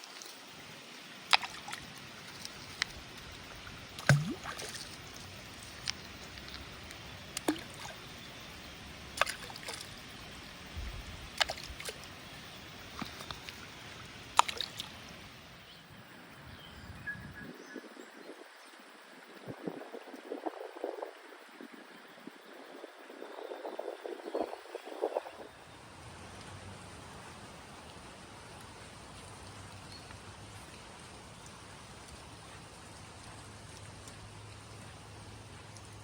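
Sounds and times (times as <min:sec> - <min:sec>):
river water flowing: 0:00.0 - 0:15.7, 0:25.8 - 0:36.0
sharp plops and clicks: 0:01.2 - 0:10.0, 0:11.2 - 0:12.2, 0:12.8 - 0:15.1.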